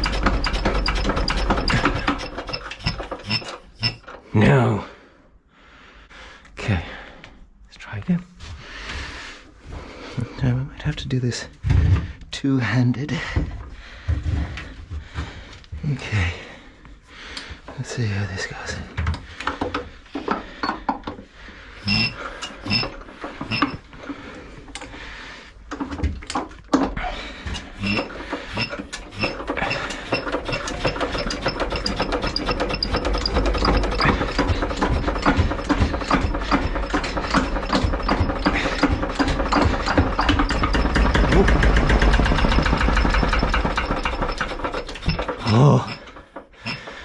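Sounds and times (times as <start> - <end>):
diesel generator cranked by hand: 0.0 - 4.2, 21.8 - 25.0, 27.4 - 47.0.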